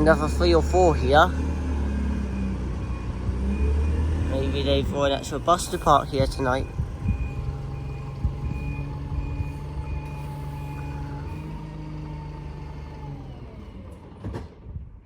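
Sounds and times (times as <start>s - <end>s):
diesel bus engine running: 0.0s - 14.8s
reversing alarm beeping: 0.1s - 11.6s.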